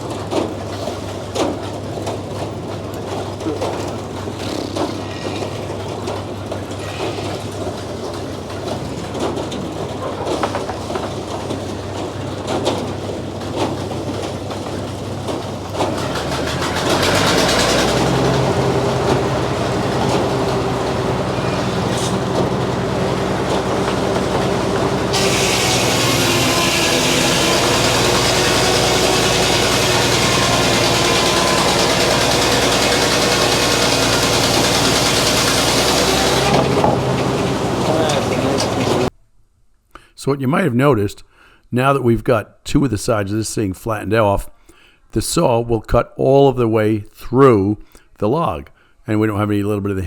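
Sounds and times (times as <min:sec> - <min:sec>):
machine hum: 0:00.0 - 0:39.1
sawmill clacks and knocks: 0:00.0 - 0:39.1
steady machine drone: 0:10.4 - 0:39.1.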